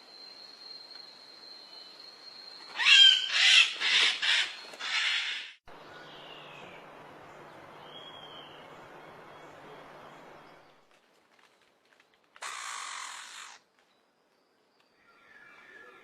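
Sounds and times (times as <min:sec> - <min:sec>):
bird screeching calls: 0:02.7 - 0:05.6, 0:12.4 - 0:13.6.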